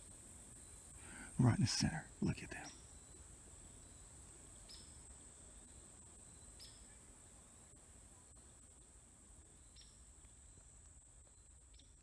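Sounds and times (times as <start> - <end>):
faint chirps: 1.0 - 2.9.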